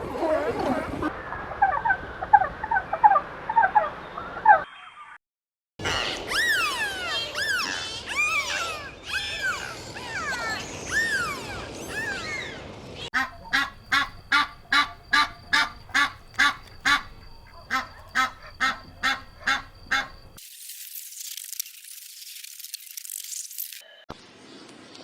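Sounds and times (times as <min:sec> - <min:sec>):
birds calling: 0:05.8 - 0:20.4
duck quacking: 0:13.2 - 0:20.2.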